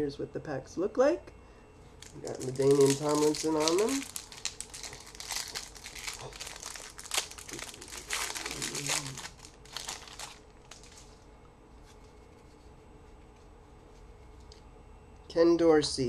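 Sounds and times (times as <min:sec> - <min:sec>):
wrapper tearing and crinkling: 0:02.0 - 0:11.2.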